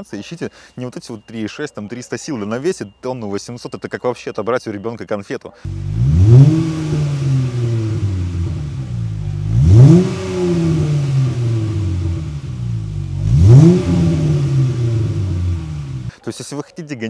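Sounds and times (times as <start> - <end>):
car engine idling: 5.7 - 16.1
engine revving: 5.7 - 16.1.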